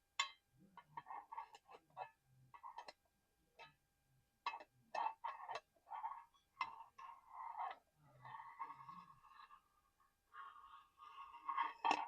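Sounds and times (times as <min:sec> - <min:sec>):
scratchy rubs: 0:00.9 - 0:01.8, 0:05.0 - 0:12.0.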